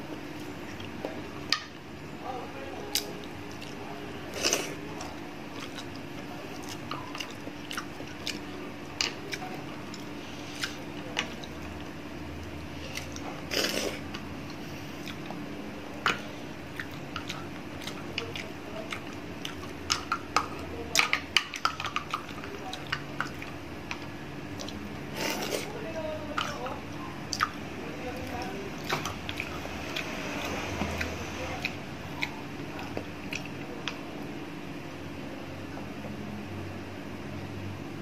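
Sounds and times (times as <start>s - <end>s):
faint steady hum: 0.0s - 38.0s
chewing with wet mouth smacks: 2.9s - 25.7s, 26.3s - 34.3s.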